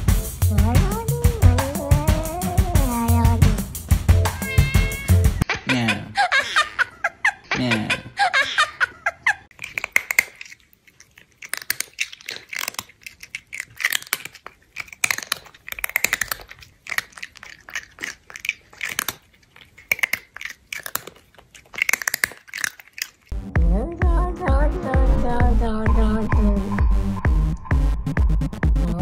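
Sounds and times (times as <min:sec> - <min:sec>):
chewing and crunching: 0:09.5 - 0:23.4.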